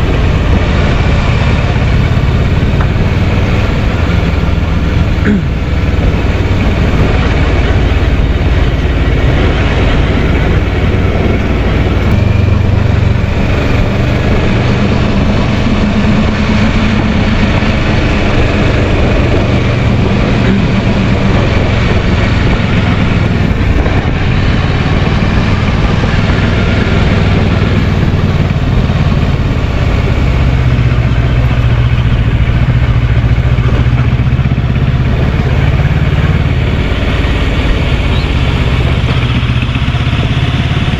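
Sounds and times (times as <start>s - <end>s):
constant rushing noise: 0.0s - 40.9s
motorcycle engine running: 0.0s - 40.9s.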